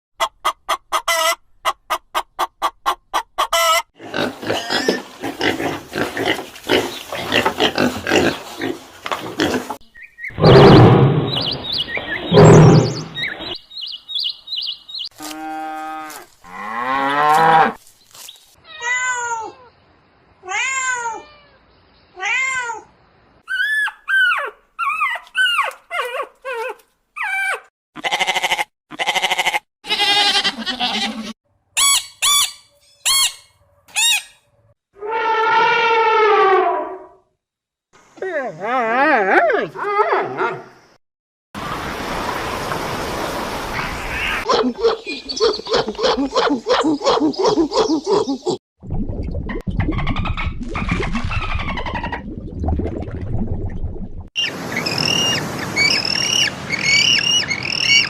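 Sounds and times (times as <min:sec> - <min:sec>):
loud deep animal call: 0:10.3 - 0:13.3
short arching high calls: 0:31.8 - 0:35.9, 0:54.4 - 0:58.0.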